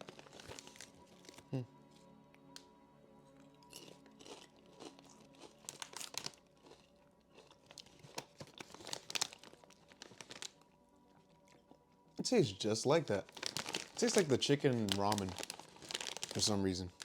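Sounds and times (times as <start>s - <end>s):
crunching potato chips: 0.0s - 1.4s, 3.4s - 10.7s, 12.9s - 17.0s.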